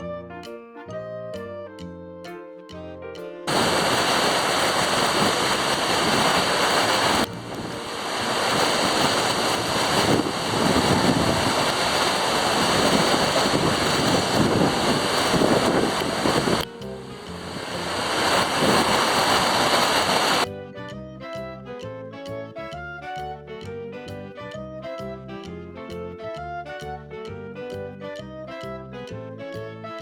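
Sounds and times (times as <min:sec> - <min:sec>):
music notes: 0:00.0 - 0:30.0
waterfall rushing: 0:03.5 - 0:20.4.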